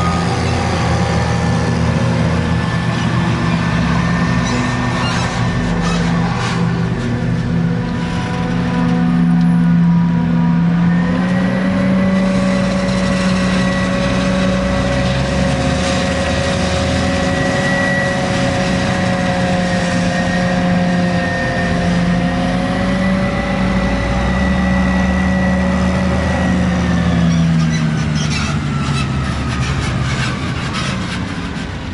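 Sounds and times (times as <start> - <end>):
diesel machinery whining: 0.0 - 31.9.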